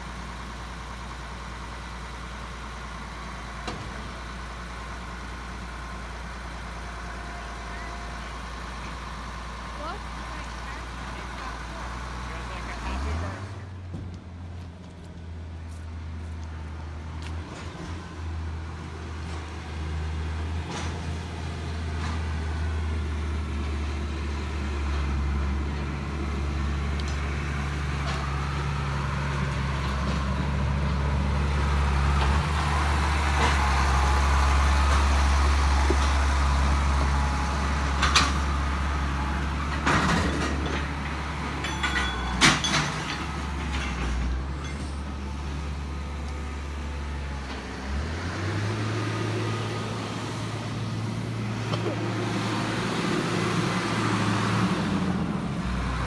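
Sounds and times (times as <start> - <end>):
heavy diesel engine running: 0.0 - 56.0
engine whine: 3.2 - 56.0
sharp metallic clanks: 41.5 - 45.2.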